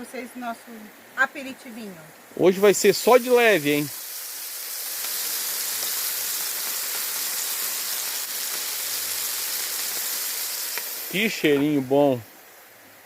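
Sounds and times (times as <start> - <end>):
meat sizzling on a grill: 2.3 - 12.7.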